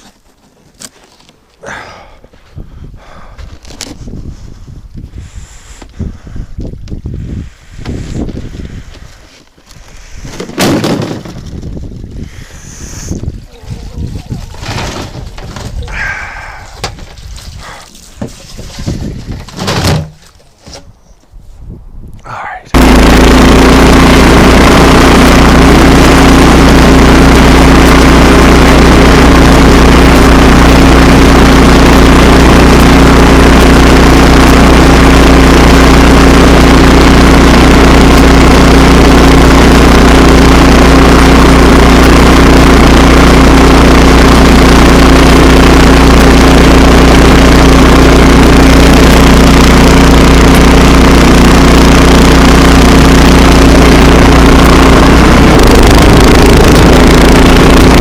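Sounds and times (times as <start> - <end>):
tractor engine running: 3.0 - 20.6, 22.8 - 58.0.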